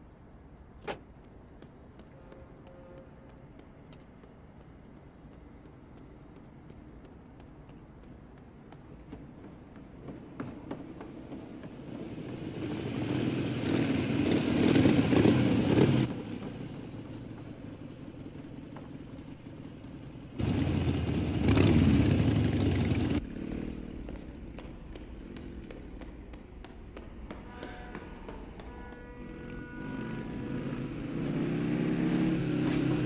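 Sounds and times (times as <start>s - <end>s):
motorcycle engines running hard: 11.6s - 26.7s, 29.3s - 33.0s.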